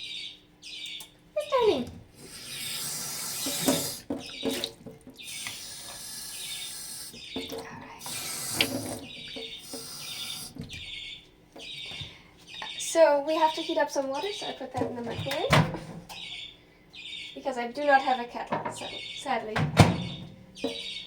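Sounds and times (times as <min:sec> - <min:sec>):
water pouring from tap into container: 0:02.2 - 0:07.2, 0:08.0 - 0:10.6.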